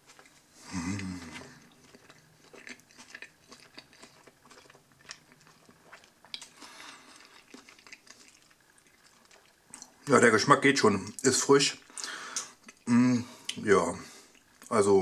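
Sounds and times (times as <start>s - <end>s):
person chewing food: 0.0s - 10.1s, 11.8s - 14.8s
short hummed vocal sound: 0.6s - 1.6s, 12.9s - 13.3s.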